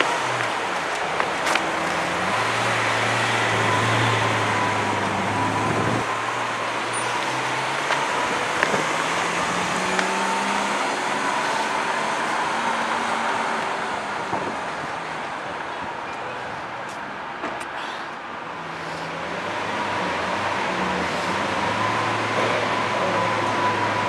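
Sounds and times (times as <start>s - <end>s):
car engine humming: 0.0s - 15.6s
city traffic: 0.0s - 24.0s.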